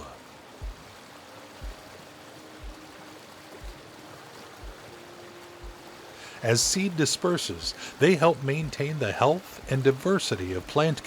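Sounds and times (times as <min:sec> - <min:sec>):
soft background music: 0:00.0 - 0:11.0
stream water running: 0:00.0 - 0:11.0.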